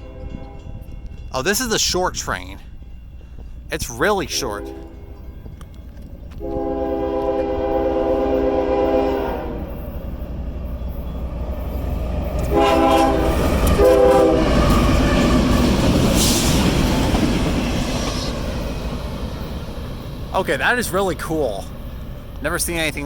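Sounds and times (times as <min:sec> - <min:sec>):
train rushing and clattering by: 0:00.0 - 0:23.0
train air horn blasts: 0:04.3 - 0:05.2, 0:06.4 - 0:09.9, 0:12.4 - 0:14.7.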